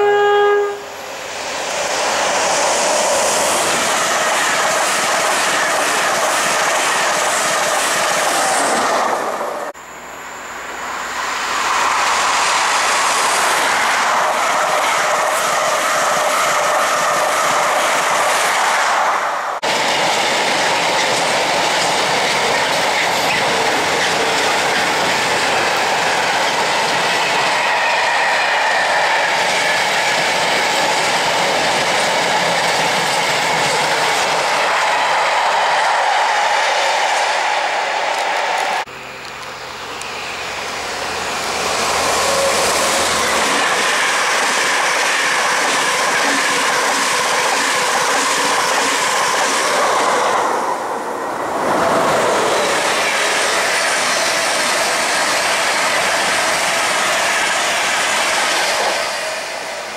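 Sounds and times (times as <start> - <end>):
express train rushing past: 0.0 - 59.9
freight wagons clickety-clack: 19.6 - 27.5, 43.3 - 50.0.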